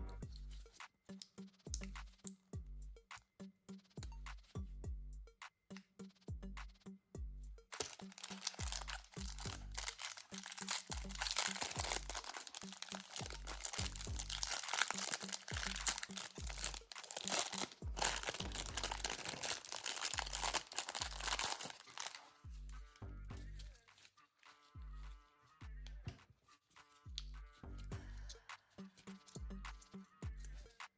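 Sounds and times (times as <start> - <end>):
background music with steady beat: 0.0 - 30.9
packaging crinkling and tearing: 7.8 - 22.4.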